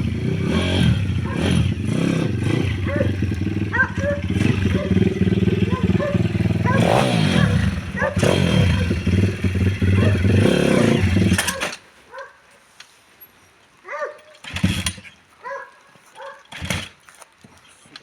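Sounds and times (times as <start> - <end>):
motorcycle engine running: 0.0 - 11.8, 14.4 - 15.2, 16.5 - 17.0
animal yelps: 2.8 - 5.0, 5.7 - 9.0.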